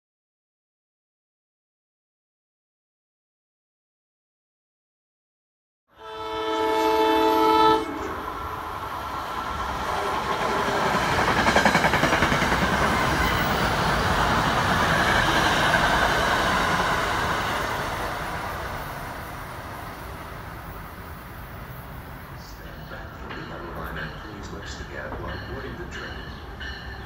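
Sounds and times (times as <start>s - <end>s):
train horn blast: 5.9s - 8.4s
train passing with wheels clacking: 6.6s - 27.0s.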